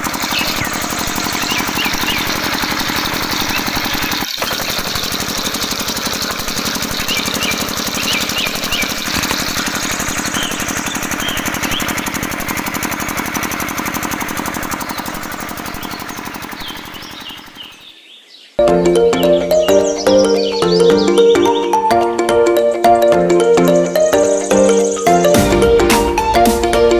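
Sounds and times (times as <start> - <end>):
small engine knocking: 0.0 - 17.9.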